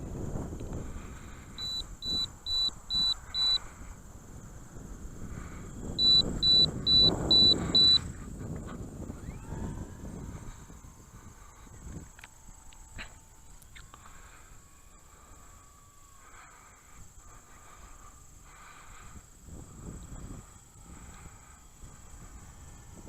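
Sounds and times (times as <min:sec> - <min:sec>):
low wind rumble: 0:00.0 - 0:23.0
steady high whine: 0:00.0 - 0:23.0
electronic beeper short high beeps: 0:01.6 - 0:03.6, 0:06.0 - 0:08.0.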